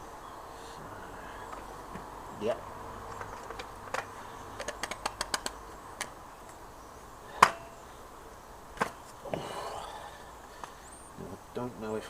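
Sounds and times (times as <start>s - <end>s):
small parts clicking: 3.1s - 6.1s.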